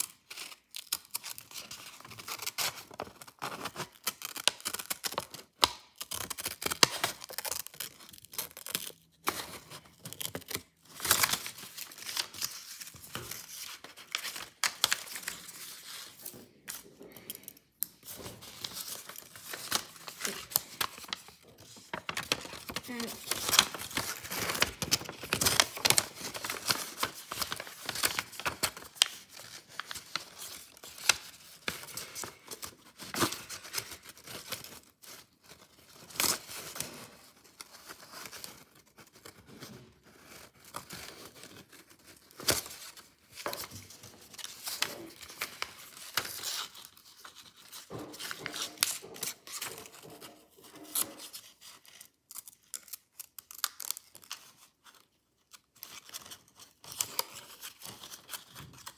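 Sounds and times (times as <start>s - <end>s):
paper rustling and crinkling: 0.0s - 58.9s
scissors snipping paper: 22.0s - 34.8s.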